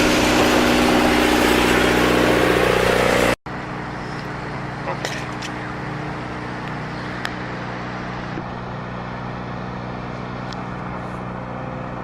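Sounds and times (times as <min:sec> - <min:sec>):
vehicle engine hum: 0:00.0 - 0:12.0.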